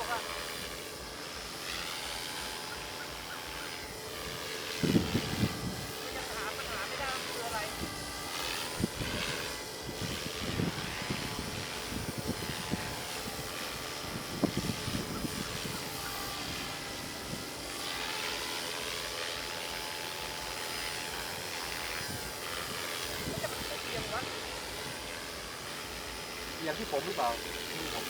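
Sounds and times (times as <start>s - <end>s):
model aircraft motor and propeller: 0.0s - 28.0s.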